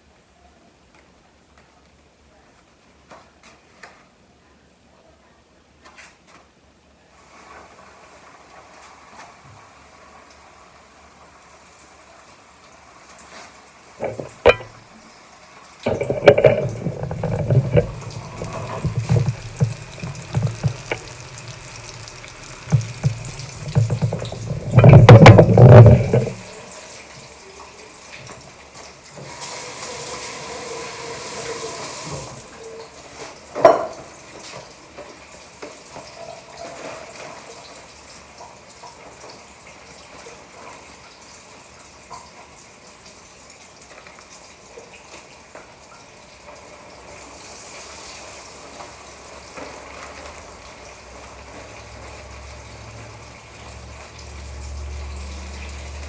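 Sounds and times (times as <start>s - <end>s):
bumps and handling knocks: 14.0s - 14.8s, 15.9s - 26.6s
tap running: 14.0s - 14.8s, 15.9s - 26.6s
utensil clack: 14.0s - 14.8s, 15.9s - 26.6s.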